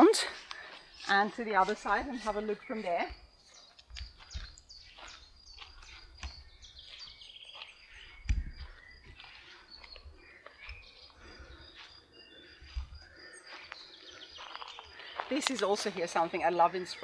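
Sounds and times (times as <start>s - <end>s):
birds chirping and calling: 0.0s - 17.0s
dull low thumps: 8.2s - 9.2s.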